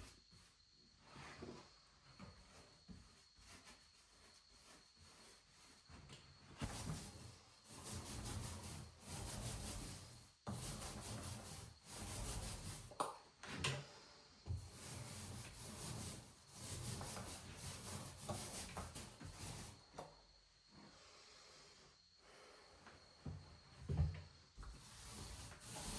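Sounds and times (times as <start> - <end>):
hand tool rubbing a surface: 2.3 - 13.0, 14.5 - 20.0, 24.6 - 25.9.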